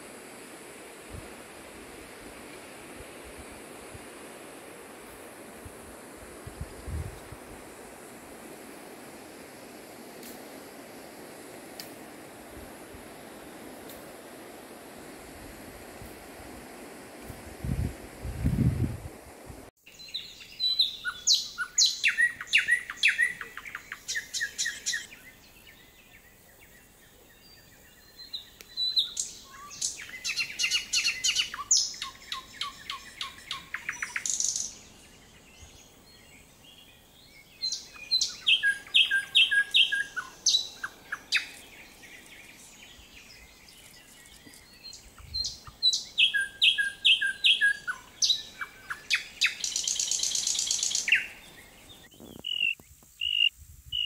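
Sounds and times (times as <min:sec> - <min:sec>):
songbird chirping: 0:19.8 - 0:54.0.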